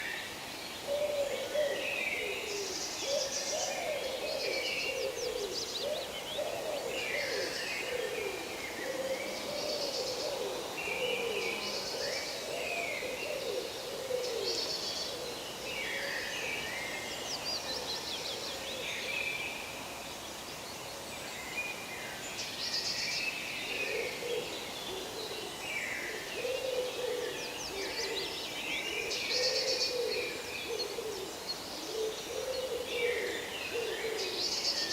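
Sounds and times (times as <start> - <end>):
birds chirping and trilling: 20.6 - 34.9.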